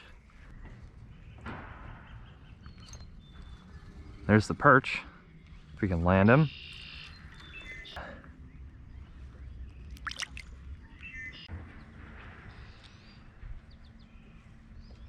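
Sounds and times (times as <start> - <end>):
faint bird chirps: 0.0 - 11.5
wind rumble: 0.0 - 15.0.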